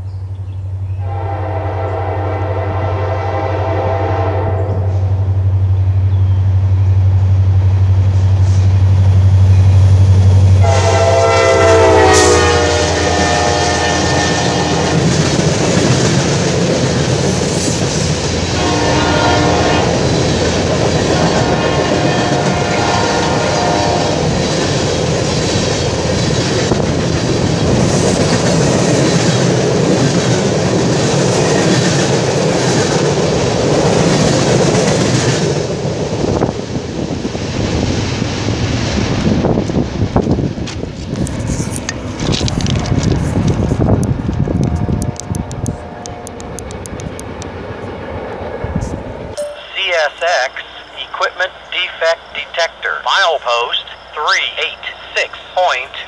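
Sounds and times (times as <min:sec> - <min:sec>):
diesel locomotive engine: 0:00.0 - 0:56.0
locomotive air horn: 0:01.0 - 0:05.2, 0:10.6 - 0:15.0, 0:18.6 - 0:20.0, 0:21.1 - 0:24.3
train wheels clacking on rails: 0:14.1 - 0:36.2.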